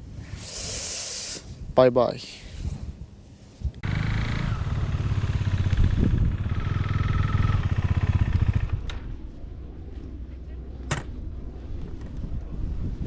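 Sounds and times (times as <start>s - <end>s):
motorcycle engine running: 3.8s - 10.0s.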